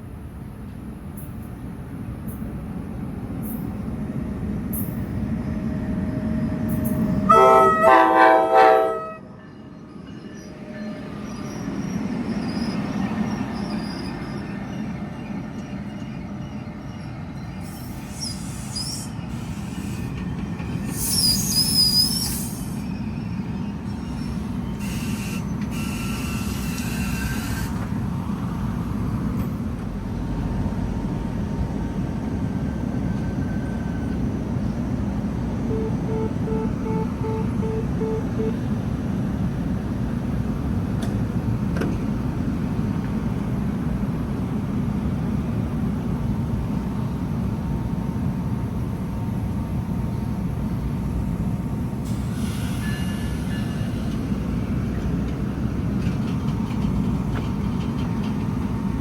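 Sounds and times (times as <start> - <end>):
train rumbling by: 0.0 - 59.0
train horn: 6.7 - 9.4, 35.7 - 38.7
wheel squeals: 9.8 - 27.9.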